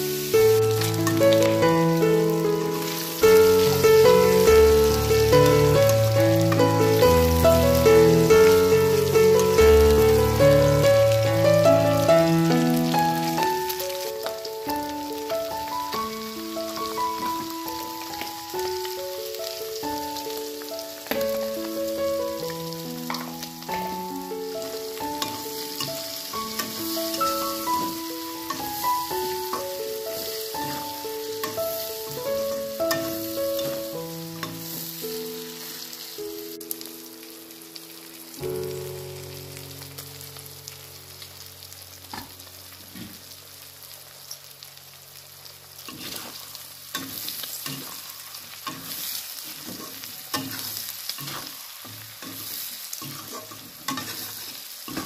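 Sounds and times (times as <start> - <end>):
instrumental background music: 0.0 - 43.3
meat sizzling in hot oil: 0.0 - 55.0
metal spatula scraping pan: 52.2 - 55.0.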